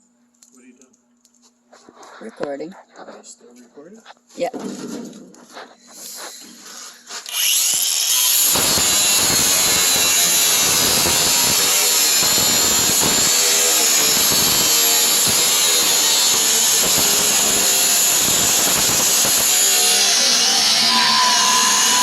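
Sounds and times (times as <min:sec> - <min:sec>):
power tool cutting sheet metal: 0:07.2 - 0:22.0
high-pitched whine: 0:07.3 - 0:22.0.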